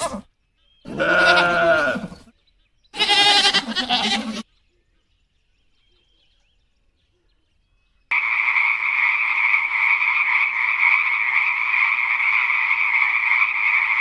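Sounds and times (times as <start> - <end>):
frog calling: 8.1 - 14.0.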